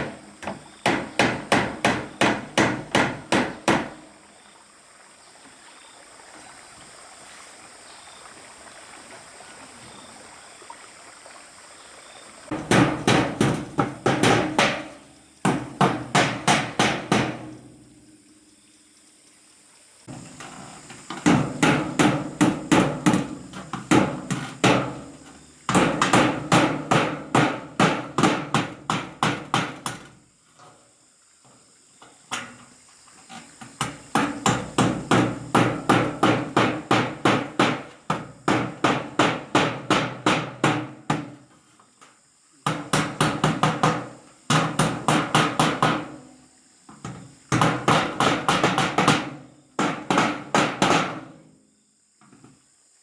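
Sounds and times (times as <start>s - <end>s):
hammer driving nails: 0.0s - 4.0s, 12.5s - 17.5s.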